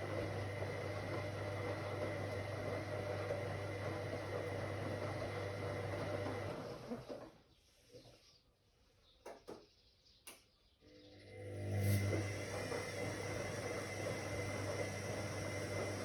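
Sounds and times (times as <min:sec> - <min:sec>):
washing machine motor running: 0:00.0 - 0:07.4, 0:10.9 - 0:16.0.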